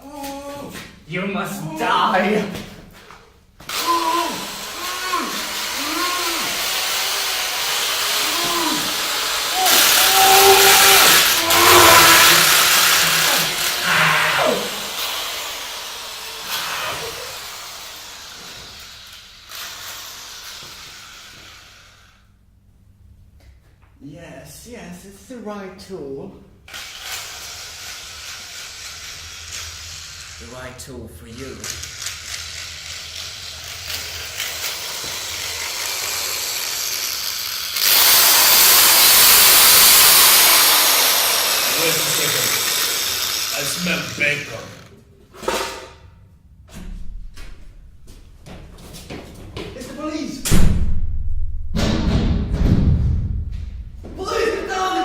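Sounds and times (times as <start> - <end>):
loud steady hissing: 3.8 - 22.3, 33.5 - 45.7
loud rushing hiss: 35.0 - 44.7.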